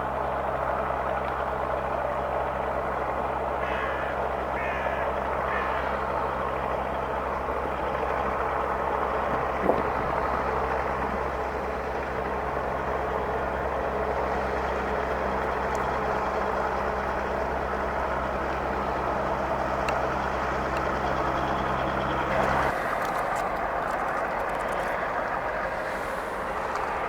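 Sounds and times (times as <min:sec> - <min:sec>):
ship diesel engines droning: 0:00.0 - 0:27.0
broad rushing noise: 0:22.3 - 0:27.0.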